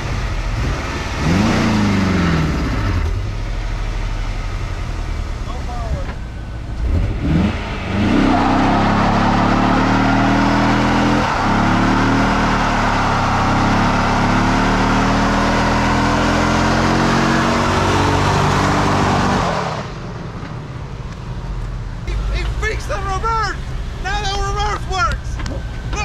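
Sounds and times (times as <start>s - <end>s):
car engine revving high: 0.0s - 3.7s, 5.0s - 20.1s
tire squeal: 6.2s - 16.5s.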